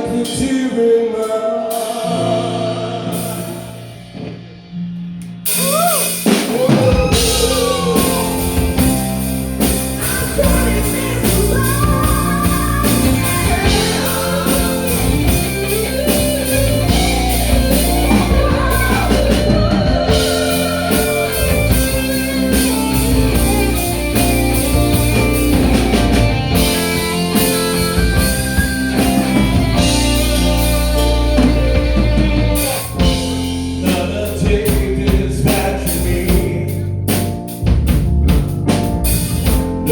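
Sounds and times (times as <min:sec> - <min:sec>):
rock band playing: 0:00.0 - 0:39.9
gliding lead melody: 0:06.7 - 0:33.9.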